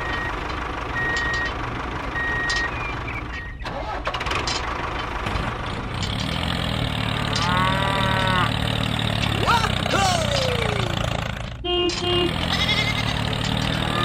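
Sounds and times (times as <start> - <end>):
reversing alarm beeping: 1.0 - 1.6, 2.2 - 3.6
small engine running: 5.2 - 14.0.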